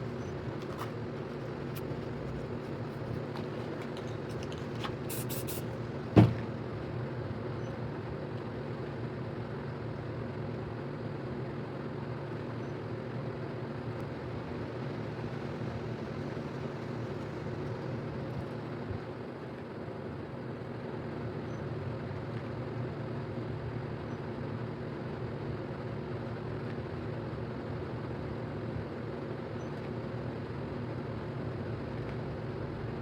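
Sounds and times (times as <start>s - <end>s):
mechanical hum and rush: 0.0s - 8.2s.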